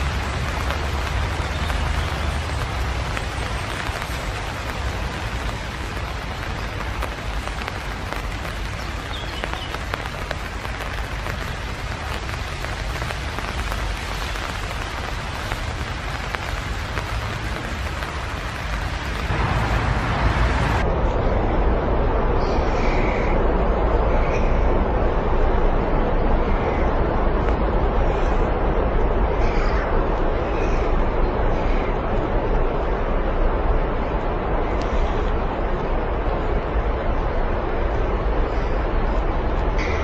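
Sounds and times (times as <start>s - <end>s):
low rumble: 9.7s - 40.0s.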